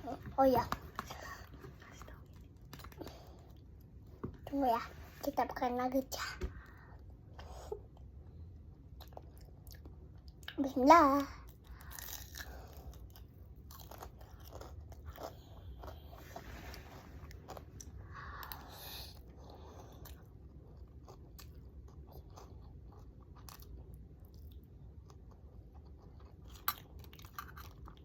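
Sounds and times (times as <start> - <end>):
person chewing crunchy food: 11.4 - 16.5, 17.2 - 28.0.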